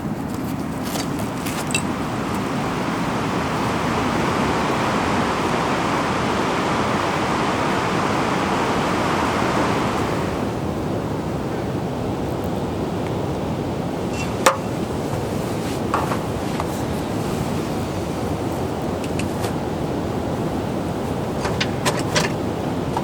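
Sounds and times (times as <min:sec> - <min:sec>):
flowing water rushing: 0:00.0 - 0:23.0.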